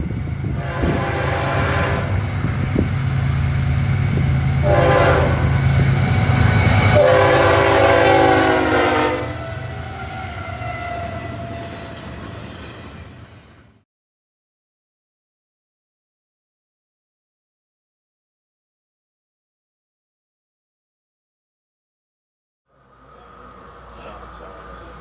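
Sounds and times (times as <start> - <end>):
locomotive horn blasts: 0.6 - 2.2, 4.6 - 11.3.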